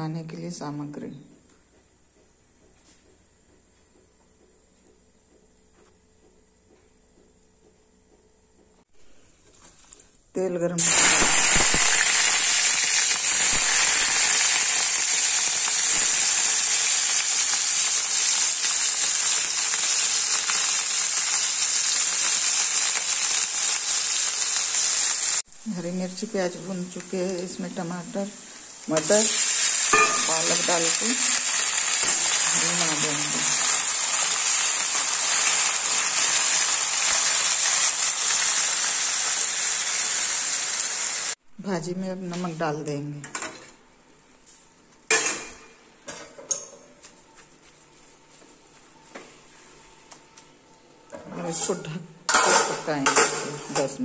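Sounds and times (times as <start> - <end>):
onions sizzling in hot oil: 10.8 - 41.4.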